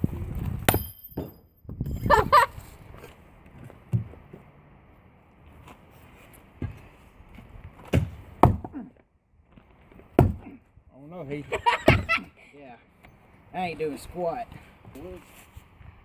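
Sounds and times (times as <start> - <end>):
dull thuds: 7.8 - 8.8, 10.1 - 10.6.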